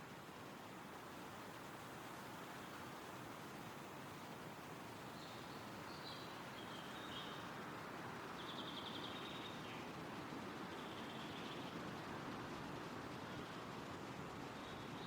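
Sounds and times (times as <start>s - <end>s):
wind rustling through trees: 0.0s - 15.0s
songbird calls and trill: 5.0s - 7.5s, 8.3s - 9.9s, 10.7s - 11.8s.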